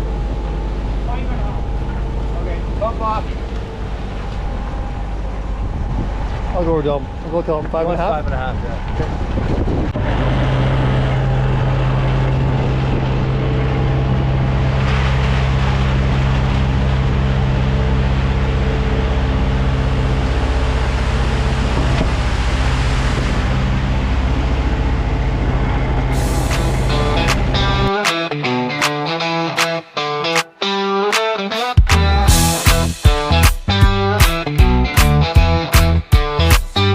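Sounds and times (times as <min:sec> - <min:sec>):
diesel truck engine running: 0:00.0 - 0:28.6, 0:31.8 - 0:36.9
high hiss: 0:26.1 - 0:27.4.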